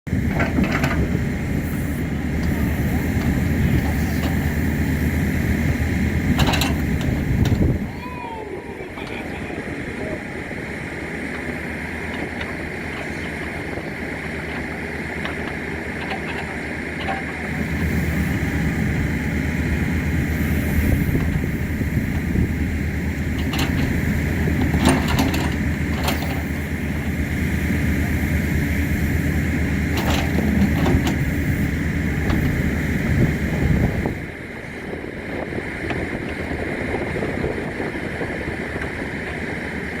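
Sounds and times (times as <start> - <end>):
excavator engine running: 0.1 - 40.0.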